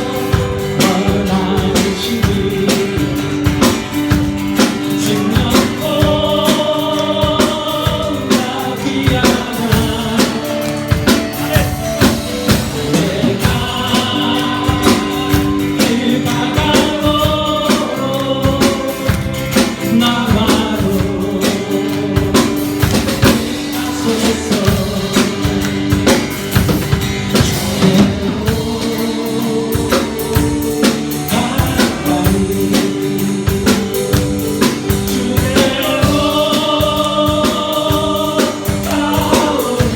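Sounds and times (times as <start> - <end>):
congregation and band singing: 0.0 - 39.9
drum kit beat: 0.0 - 39.9
people clapping along: 10.1 - 11.7, 13.0 - 27.5.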